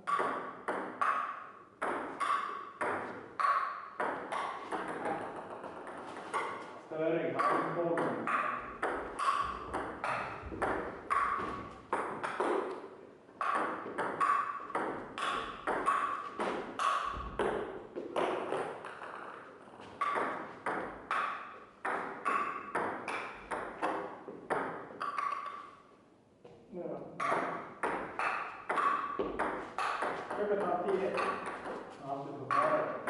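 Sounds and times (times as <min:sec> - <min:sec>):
ping-pong ball clicking: 0:00.1 - 0:06.6, 0:07.4 - 0:12.8, 0:13.4 - 0:17.6, 0:20.0 - 0:25.7, 0:27.2 - 0:31.8.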